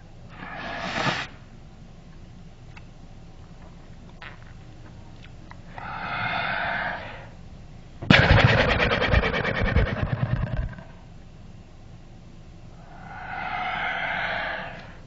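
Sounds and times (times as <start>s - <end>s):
lip fluttering snort: 8.1s - 10.9s.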